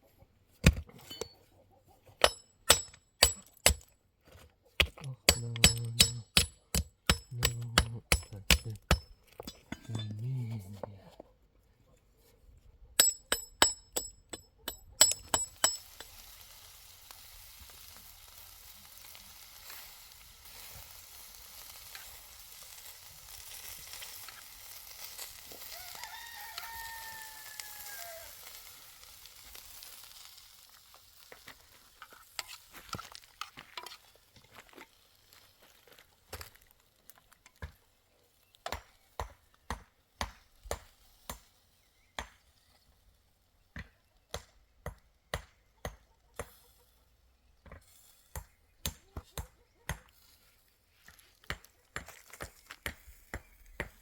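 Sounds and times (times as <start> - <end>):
food sizzling in a frying pan: 15.8 - 32.1
rooster crowing: 25.7 - 28.4.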